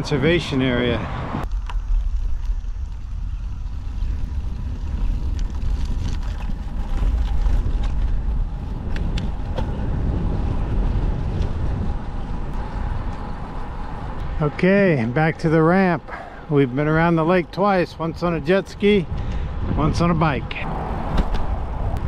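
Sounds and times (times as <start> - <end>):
wind buffeting microphone: 0.0 - 22.0
faint bicycle ticks: 11.2 - 14.3, 19.1 - 19.5.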